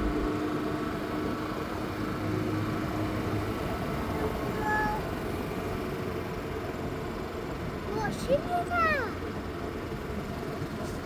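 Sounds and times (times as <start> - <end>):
vehicle engine humming: 0.0 - 6.3.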